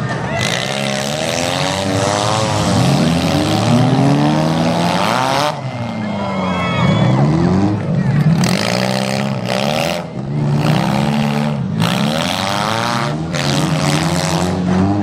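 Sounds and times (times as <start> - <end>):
car engines revving hard: 0.0 - 15.0.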